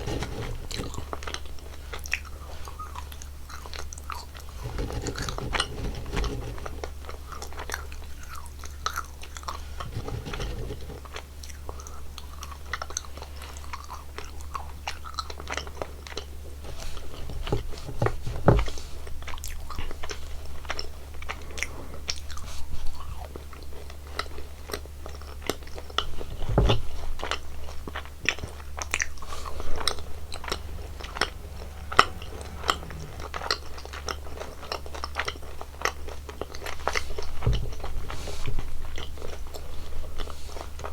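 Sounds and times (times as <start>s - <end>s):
steady low hum: 25.9s - 40.9s.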